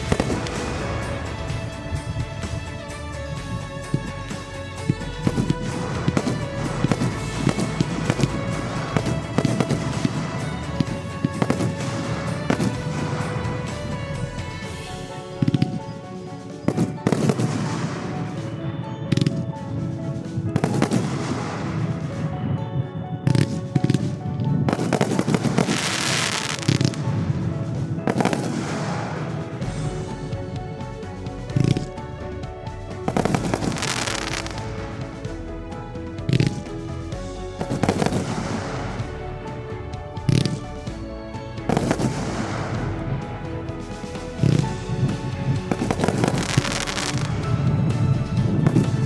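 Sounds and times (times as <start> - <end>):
fireworks banging and crackling: 0.0 - 49.0
music playing: 0.0 - 49.0.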